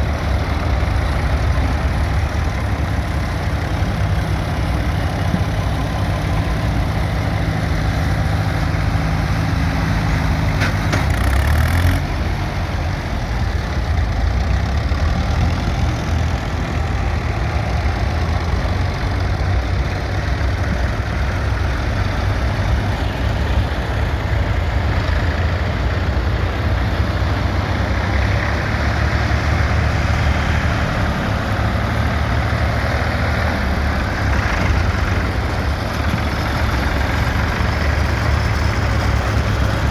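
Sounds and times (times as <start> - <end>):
tractor engines droning: 0.0 - 39.9.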